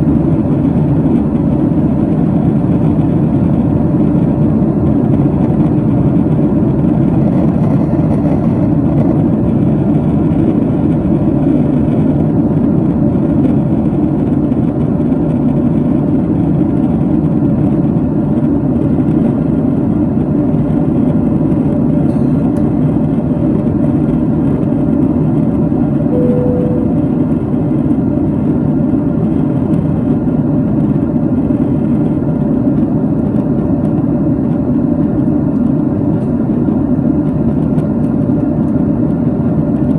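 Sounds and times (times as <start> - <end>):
jet engines and airflow rushing: 0.0 - 39.9
short single tone: 26.1 - 27.6.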